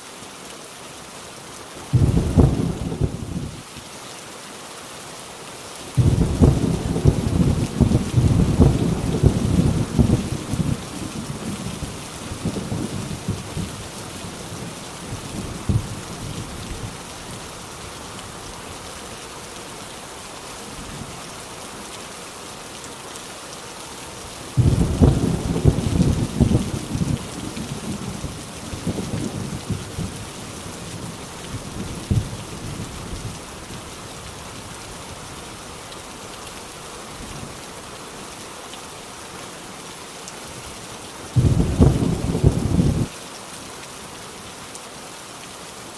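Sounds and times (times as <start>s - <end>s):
heavy rain on a tin roof: 0.0s - 45.9s
thunder rolling: 2.0s - 3.5s, 6.0s - 10.8s, 24.6s - 28.1s, 41.4s - 43.1s
loud crack of thunder: 6.0s - 10.8s, 24.6s - 27.2s, 41.4s - 43.1s.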